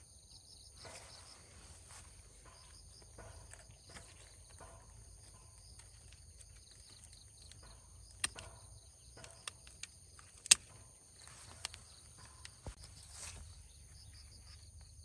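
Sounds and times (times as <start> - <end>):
insects chirping chorus: 0.0 - 15.0
sharp clicks: 5.7 - 12.8.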